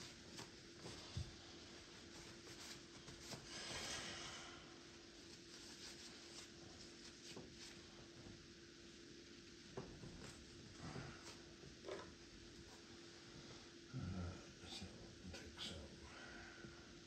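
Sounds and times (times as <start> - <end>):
paintbrush strokes on canvas: 0.0 - 9.7
low steady hum: 0.0 - 17.0.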